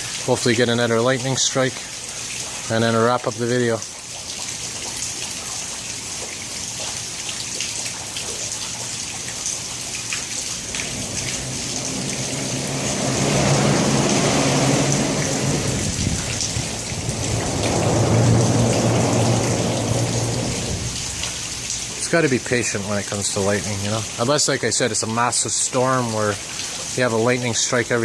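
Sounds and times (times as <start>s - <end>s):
heavy rain falling: 0.0s - 28.0s
low rumble: 10.4s - 21.6s.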